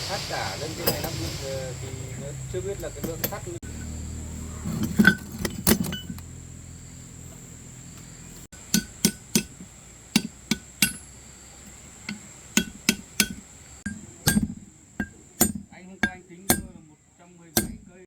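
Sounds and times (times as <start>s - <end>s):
hammer striking metal: 8.6s - 11.1s, 11.7s - 16.8s, 17.5s - 18.0s.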